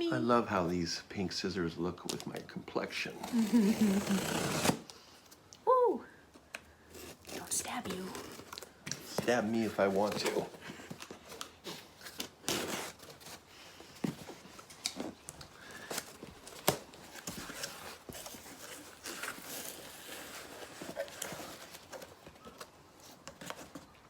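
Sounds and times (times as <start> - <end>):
cardboard box being opened: 3.1 - 4.9, 6.9 - 23.9
packing material rustling: 3.1 - 4.9, 6.8 - 24.0.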